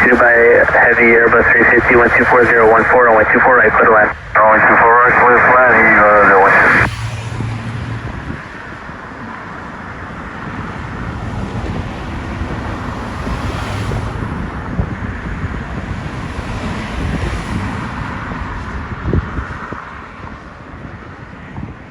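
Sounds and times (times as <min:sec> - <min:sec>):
jet engine rush: 0:00.0 - 0:20.7
wind buffeting microphone: 0:07.4 - 0:21.9.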